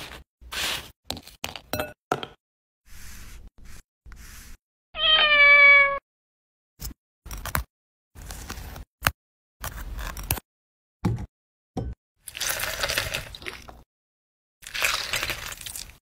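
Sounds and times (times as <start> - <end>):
cat meowing: 5.0 - 6.0.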